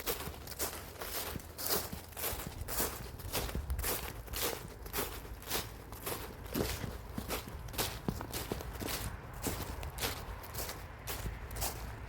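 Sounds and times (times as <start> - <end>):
footsteps on a path: 0.0 - 12.0.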